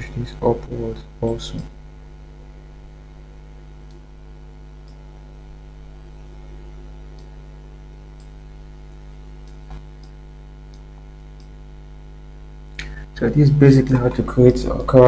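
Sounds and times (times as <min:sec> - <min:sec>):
electrical mains hum: 0:00.0 - 0:15.0
computer mouse clicks: 0:04.8 - 0:05.0, 0:08.2 - 0:08.4, 0:09.4 - 0:11.6.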